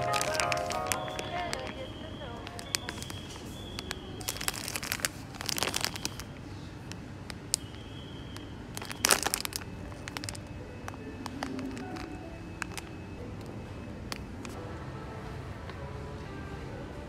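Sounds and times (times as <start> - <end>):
crinkling and rustling handling: 0.0 - 7.6, 8.7 - 13.0.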